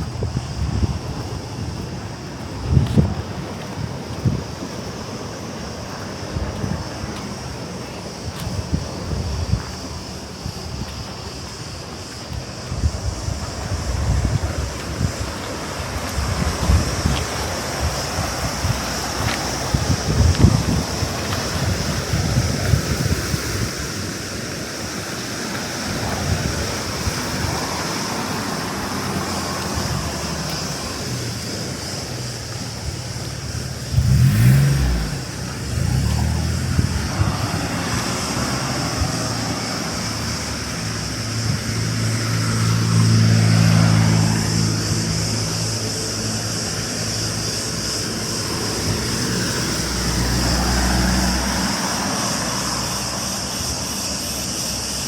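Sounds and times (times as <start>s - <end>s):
cicadas buzzing: 0.0s - 55.0s
motor vehicle passing: 25.8s - 54.5s.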